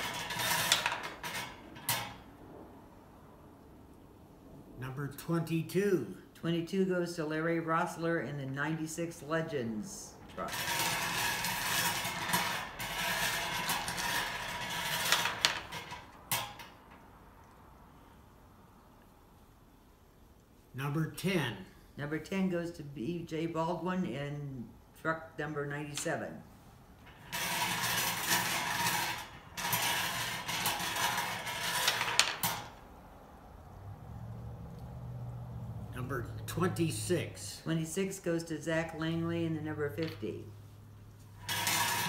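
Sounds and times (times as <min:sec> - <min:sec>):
plastic balls rattling: 0:00.0 - 0:02.0, 0:27.1 - 0:32.8.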